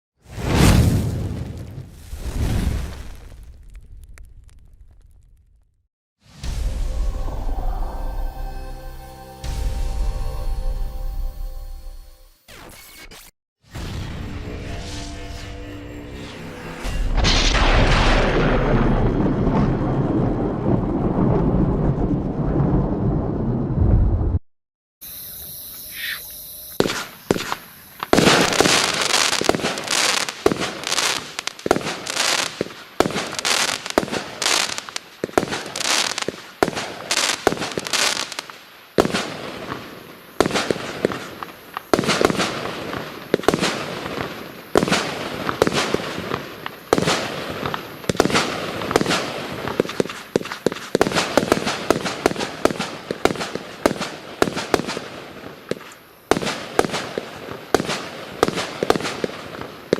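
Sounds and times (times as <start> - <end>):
firework cake firing shots: 26.8 - 38.4, 40.4 - 55.1, 55.7 - 59.9.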